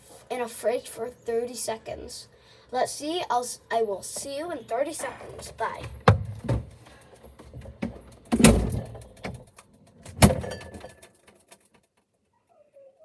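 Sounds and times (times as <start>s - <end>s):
fridge door shutting: 5.0s - 6.8s, 7.4s - 9.5s, 10.1s - 11.0s
handling knocks: 5.0s - 9.5s, 10.1s - 11.0s.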